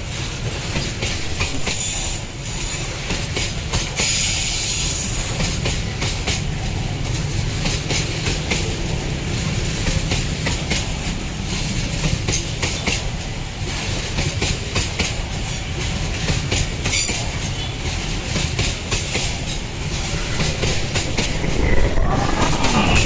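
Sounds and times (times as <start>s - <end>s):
steel wheels rumbling: 17.9s - 23.0s
rising pitched tone: 19.5s - 23.0s.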